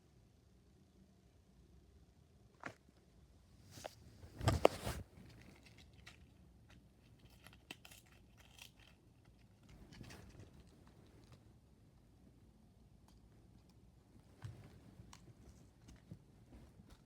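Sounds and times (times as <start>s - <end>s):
cardboard box rustling: 4.3s - 5.2s.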